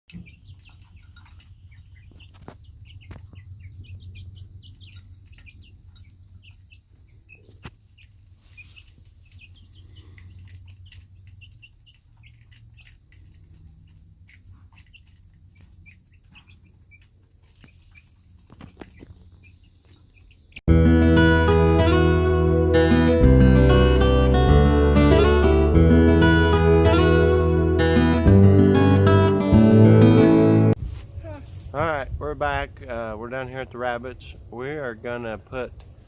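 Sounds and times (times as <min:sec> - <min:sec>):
small birds chirping: 0:00.1 - 0:20.6.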